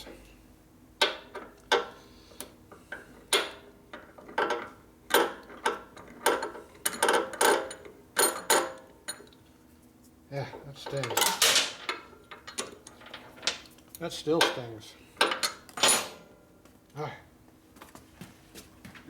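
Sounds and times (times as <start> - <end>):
metal tools clicking and knocking: 10.8 - 13.6.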